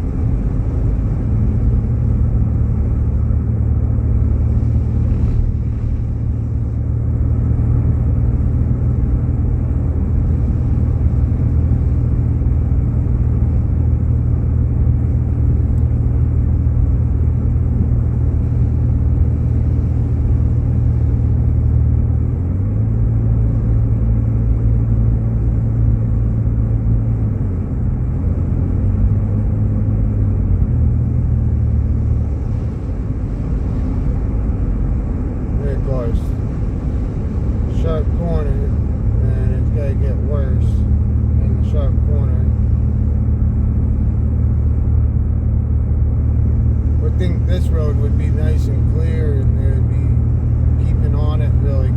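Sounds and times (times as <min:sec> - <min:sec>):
car driving on snowy road: 0:00.0 - 0:51.9.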